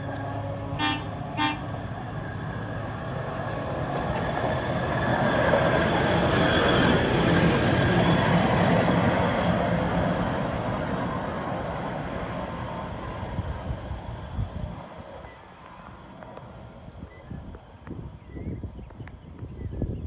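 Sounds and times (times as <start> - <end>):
truck running along rails: 0.0 - 16.8
truck horn toots: 0.7 - 1.7.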